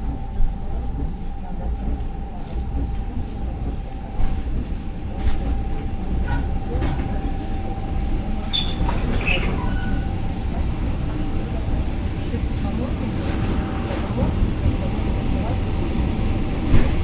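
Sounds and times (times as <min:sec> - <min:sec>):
train rumble inside carriage: 0:00.0 - 0:17.0
faint wheel squeaks: 0:08.0 - 0:10.6.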